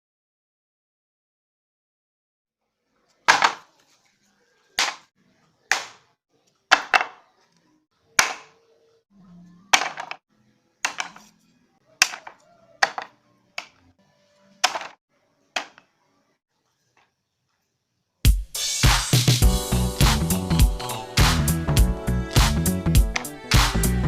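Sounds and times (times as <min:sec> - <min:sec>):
faint background music: 0:02.7 - 0:18.8.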